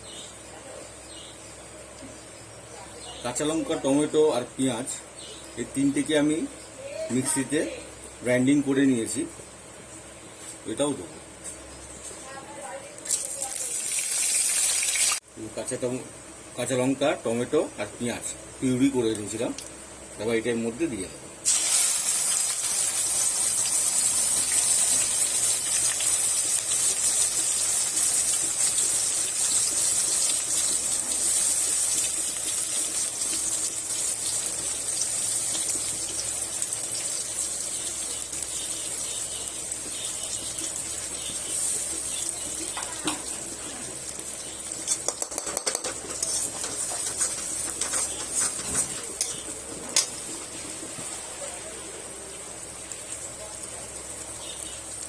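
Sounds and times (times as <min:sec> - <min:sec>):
puree sizzling in hot oil: 0:09.9 - 0:55.0
spatula scraping pan: 0:44.8 - 0:50.8.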